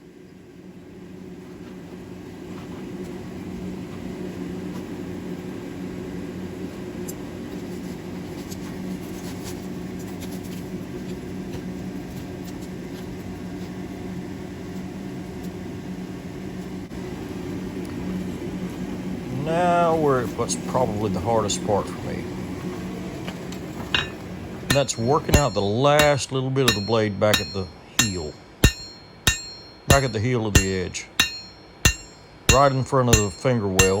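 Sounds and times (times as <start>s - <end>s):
forge blower humming: 13.3s - 34.0s.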